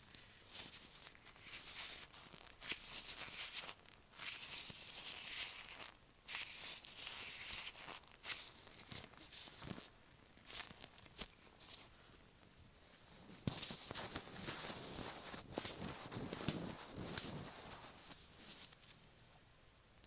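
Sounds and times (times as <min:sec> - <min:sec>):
gloved fingers rubbing microphone: 0:13.5 - 0:18.7.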